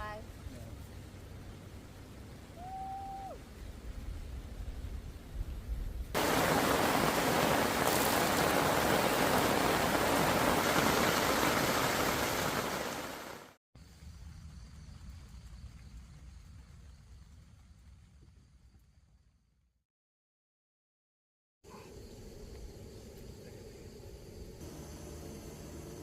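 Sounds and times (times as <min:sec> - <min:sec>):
heavy rain pouring: 0:06.2 - 0:13.6.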